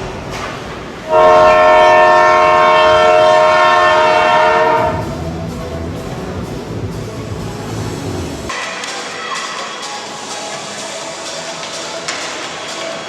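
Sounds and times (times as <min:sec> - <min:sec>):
loud horn blast: 0:01.1 - 0:05.2.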